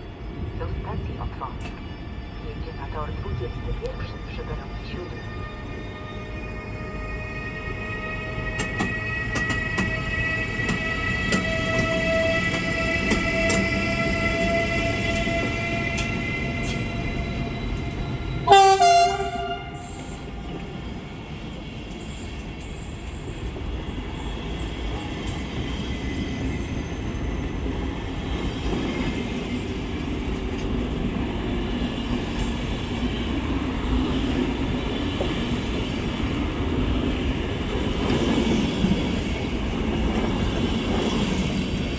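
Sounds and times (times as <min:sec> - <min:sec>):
train rolling rumble: 0:00.0 - 0:41.9
electric train whine rising: 0:03.8 - 0:41.9
train horn blast: 0:18.4 - 0:20.5.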